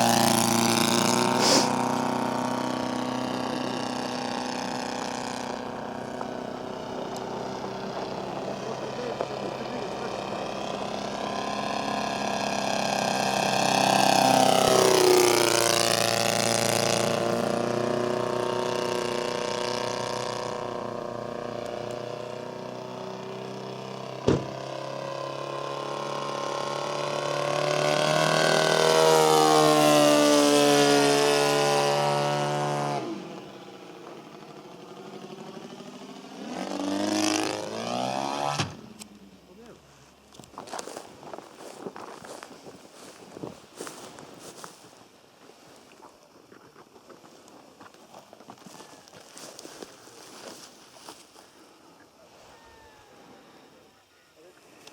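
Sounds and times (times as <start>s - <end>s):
model plane engine in flight: 0.0s - 39.8s.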